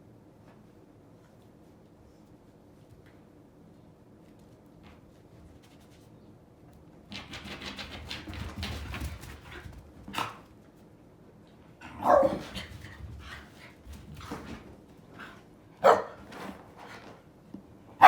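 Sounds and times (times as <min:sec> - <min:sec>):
dogs barking: 0:11.9 - 0:12.5, 0:15.8 - 0:16.2.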